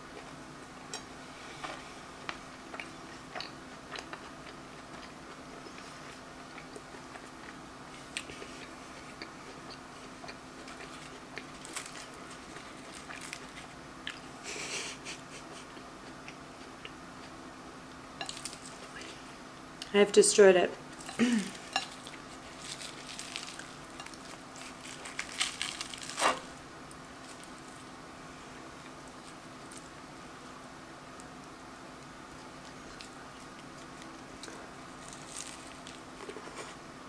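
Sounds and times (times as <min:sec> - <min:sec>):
food crackling: 0:00.1 - 0:15.2, 0:15.8 - 0:37.0
food crunching: 0:00.9 - 0:14.4, 0:18.2 - 0:19.2, 0:20.9 - 0:30.2, 0:31.1 - 0:36.8
close-miked chewing: 0:01.6 - 0:14.4, 0:20.9 - 0:28.0, 0:31.1 - 0:36.8.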